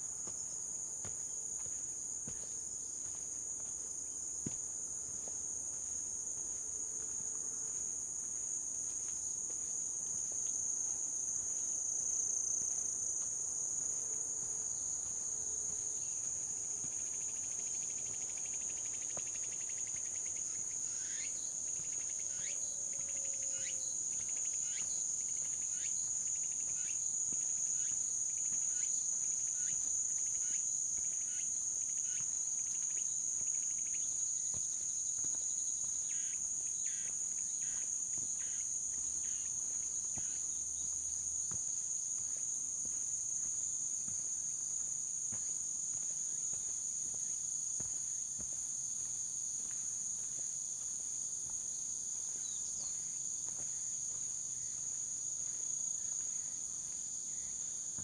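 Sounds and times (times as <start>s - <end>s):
footsteps crunching on path: 0.1s - 22.1s, 34.5s - 58.0s.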